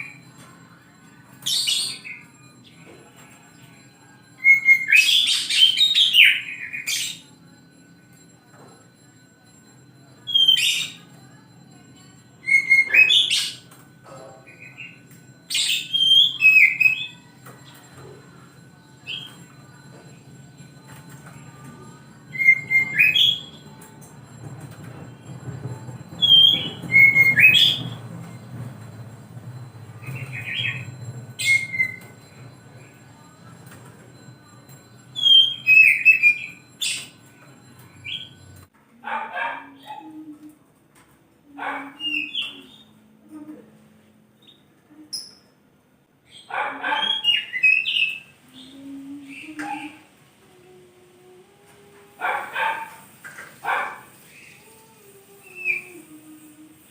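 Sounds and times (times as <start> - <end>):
songbird singing: 0.0 - 7.4, 12.1 - 38.6, 41.6 - 43.0
bird whistled song: 4.4 - 7.4, 14.5 - 17.8, 22.3 - 23.7, 26.2 - 28.0, 30.0 - 32.2, 34.5 - 37.2.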